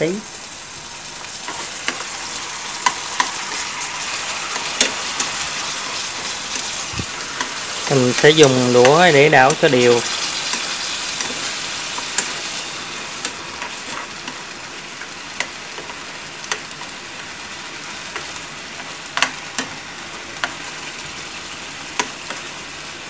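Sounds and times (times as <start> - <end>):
meat sizzling in hot oil: 0.0 - 23.0
chopsticks clicking on pan: 7.4 - 12.4, 13.2 - 14.4, 15.0 - 16.9, 18.1 - 19.8, 20.4 - 20.6, 21.9 - 22.5.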